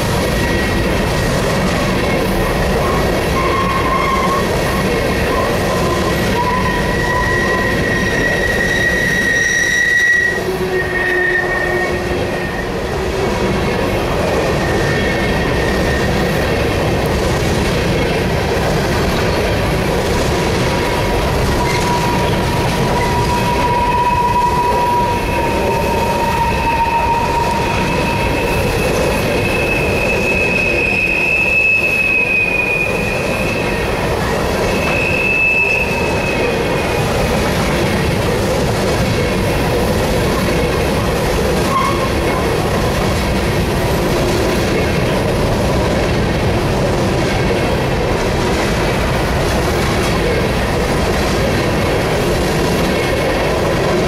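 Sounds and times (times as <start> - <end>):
train wheels rumbling on rail: 0.0 - 54.0
wheel squeals: 2.6 - 13.0, 21.4 - 37.1, 41.6 - 42.5.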